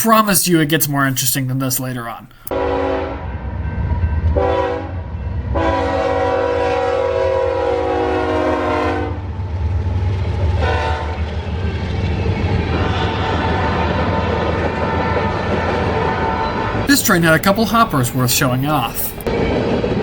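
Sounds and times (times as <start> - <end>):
locomotive air horn blasts: 2.5 - 3.2, 4.4 - 5.0, 5.6 - 9.2
low rumble of passing train: 2.5 - 16.9, 19.3 - 20.0.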